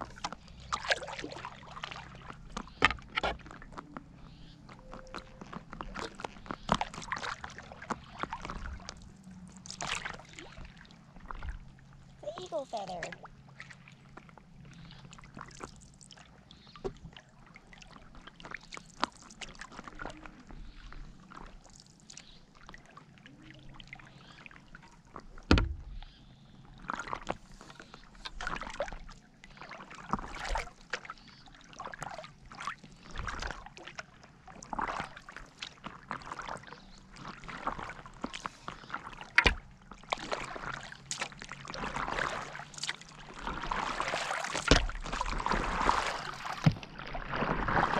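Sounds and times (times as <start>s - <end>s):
paddle splashing through water: 0.0s - 47.9s
water lapping at board: 0.0s - 47.9s.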